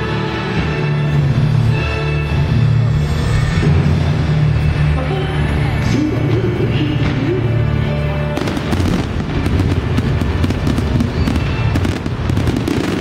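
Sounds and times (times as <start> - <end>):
fireworks crackling and popping: 8.3 - 13.0.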